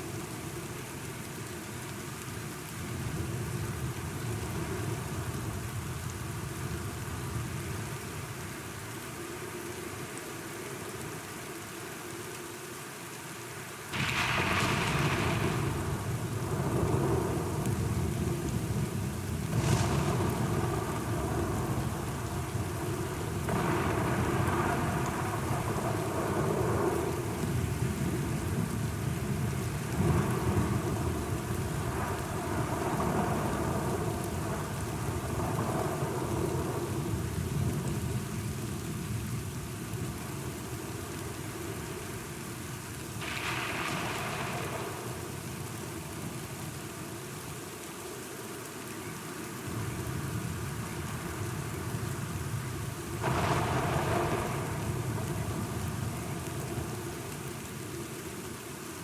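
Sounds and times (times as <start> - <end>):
steady rain: 0.0 - 59.0
thunder claps: 14.0 - 18.5, 19.5 - 27.0, 53.2 - 56.9
thunder rumbling: 14.0 - 37.8, 43.2 - 45.7, 53.1 - 57.2.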